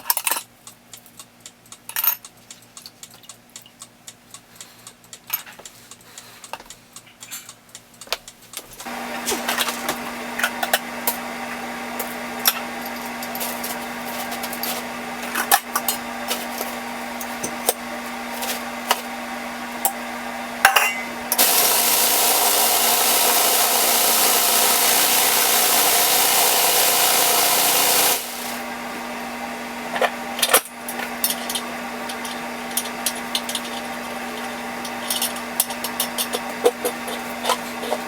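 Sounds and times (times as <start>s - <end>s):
machine hum: 8.9s - 34.8s
loud even hiss: 21.4s - 28.7s.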